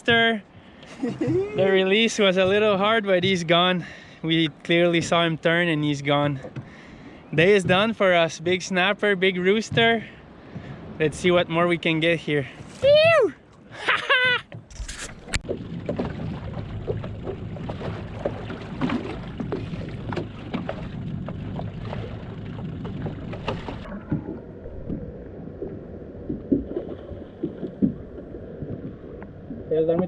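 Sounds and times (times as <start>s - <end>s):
water noise: 0.0s - 30.0s
boat motor running low: 15.2s - 30.0s.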